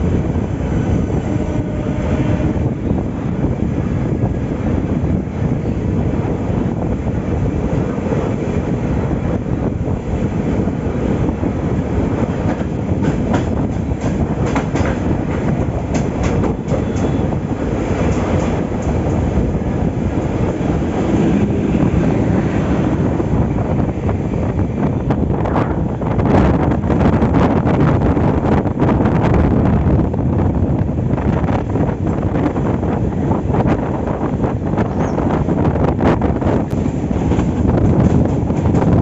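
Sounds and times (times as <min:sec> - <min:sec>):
train coaches rumbling: 0:00.0 - 0:39.0
train wheels clicking: 0:12.0 - 0:23.4, 0:36.5 - 0:39.0.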